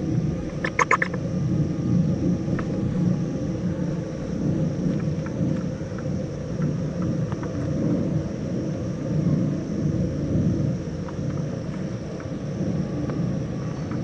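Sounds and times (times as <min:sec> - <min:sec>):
low rumbling noise: 0:00.0 - 0:14.0.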